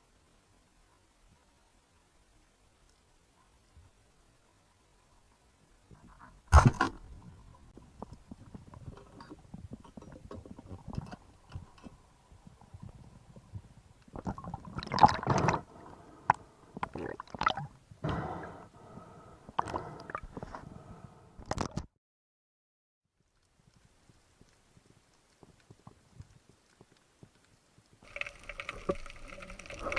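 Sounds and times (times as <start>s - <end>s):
underwater knocks and clicks: 7.8s - 15.6s, 24.4s - 29.9s
underwater gurgling: 13.0s - 18.3s, 28.0s - 29.9s.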